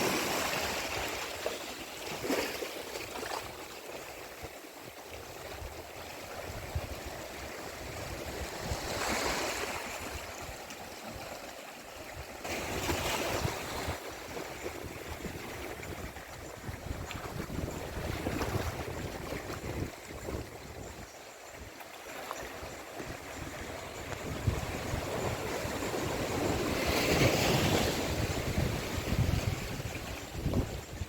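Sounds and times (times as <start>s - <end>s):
sea waves washing onto beach: 0.0s - 3.3s
wind rumble on microphone: 5.2s - 10.6s, 12.2s - 21.7s, 22.6s - 31.0s.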